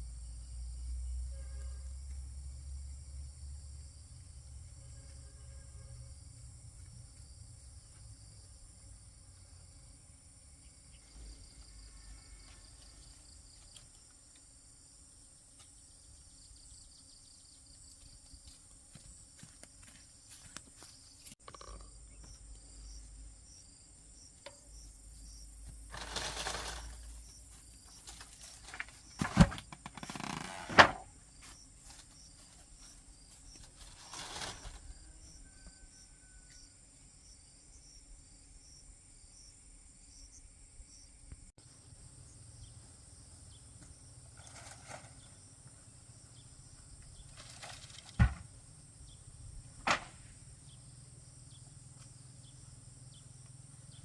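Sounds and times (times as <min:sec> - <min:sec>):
insects chirping: 0:00.0 - 0:54.0
rustling: 0:25.6 - 0:35.0.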